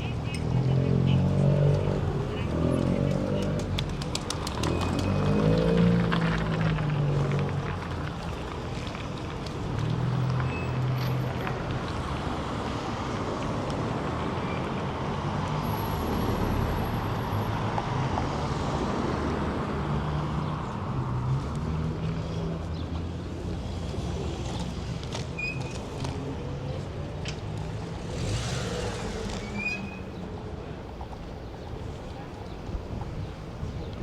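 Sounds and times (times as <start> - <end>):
city street traffic: 0.0 - 34.0.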